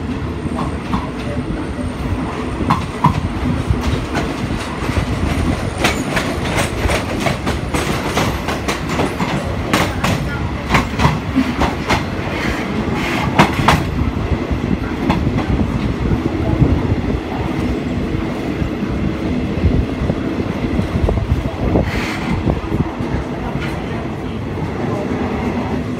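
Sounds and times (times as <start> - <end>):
train wheels rumbling: 0.0 - 25.9
wheels clacking over rail joints: 2.7 - 13.9.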